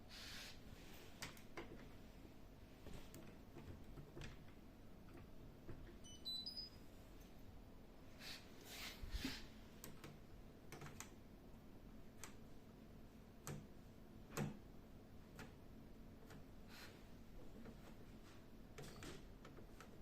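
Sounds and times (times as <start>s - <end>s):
faint clicks and light knocks: 1.2s - 2.0s, 2.8s - 6.0s, 9.8s - 11.2s, 12.1s - 12.6s, 13.4s - 13.7s, 15.2s - 15.6s, 16.2s - 16.6s.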